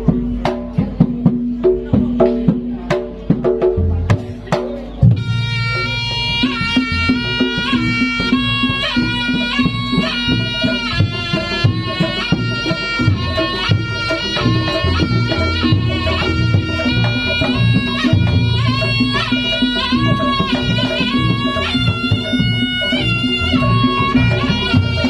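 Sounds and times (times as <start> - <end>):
drums: 0.0 - 25.0
shawm melody: 0.0 - 25.0.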